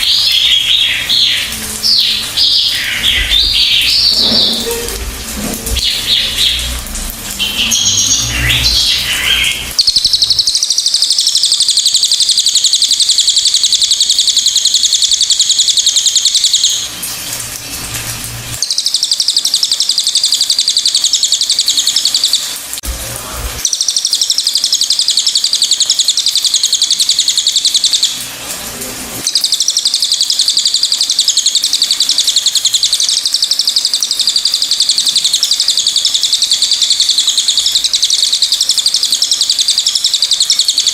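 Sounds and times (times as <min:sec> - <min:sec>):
bird singing high trills: 0:00.0 - 0:04.9, 0:05.8 - 0:16.9.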